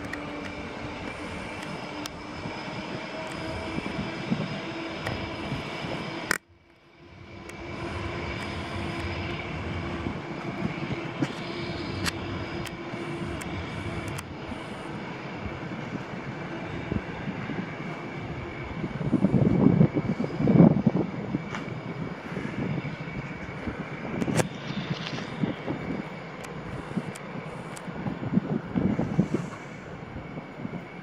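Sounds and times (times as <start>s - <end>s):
click: 0.0s - 2.2s, 3.2s - 3.5s, 5.0s - 5.2s, 7.4s - 7.6s, 8.4s - 9.4s, 11.2s - 14.3s, 24.2s - 25.3s, 26.4s - 27.9s
train drone pulling away: 0.0s - 31.0s.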